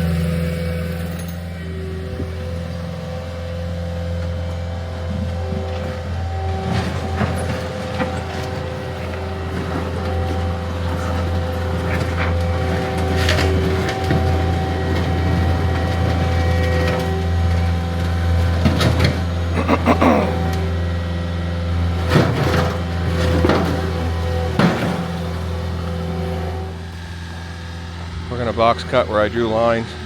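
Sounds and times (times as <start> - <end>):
asphalt clanks and scrapes: 5.6 - 17.7, 22.0 - 26.5.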